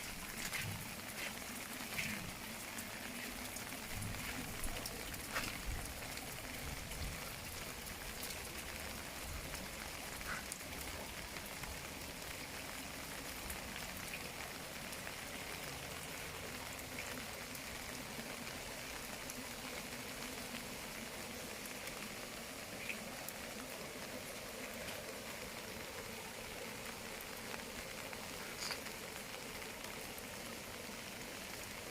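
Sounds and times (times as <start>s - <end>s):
raindrop taps: 0.0s - 8.7s
steady rain falling: 0.0s - 31.9s.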